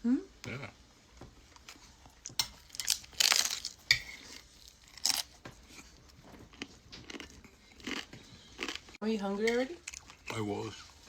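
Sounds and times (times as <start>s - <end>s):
chewing and biting food: 4.6s - 9.0s.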